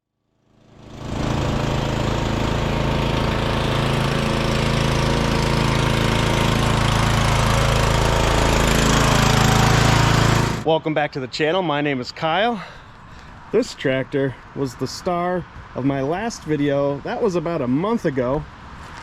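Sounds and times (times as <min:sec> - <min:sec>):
lawn tractor engine running: 0:00.4 - 0:10.7.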